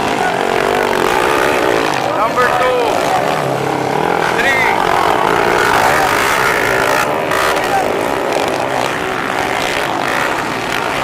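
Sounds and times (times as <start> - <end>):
motorcycle engines at high revs: 0.0 - 11.0.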